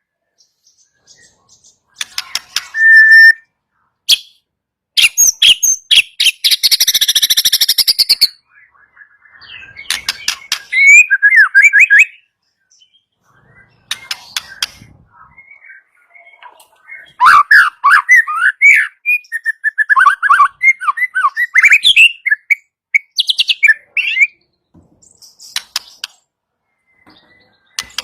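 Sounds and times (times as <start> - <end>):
bird singing clicks and whistles: 1.9 - 3.5, 5.0 - 8.3, 9.4 - 12.2, 13.6 - 28.0.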